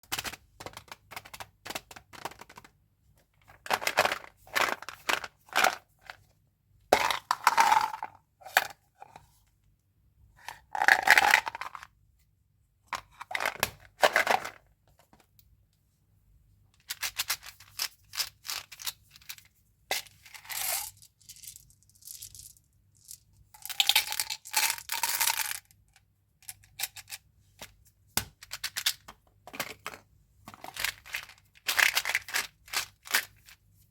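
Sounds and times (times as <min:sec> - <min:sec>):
hard candies clicking and rattling: 0:03.5 - 0:05.9, 0:20.4 - 0:25.8, 0:30.6 - 0:33.4.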